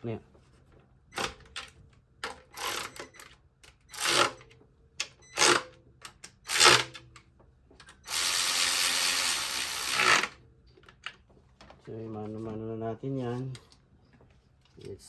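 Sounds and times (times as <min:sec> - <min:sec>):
cordless drill driving bolts: 0:08.1 - 0:10.4.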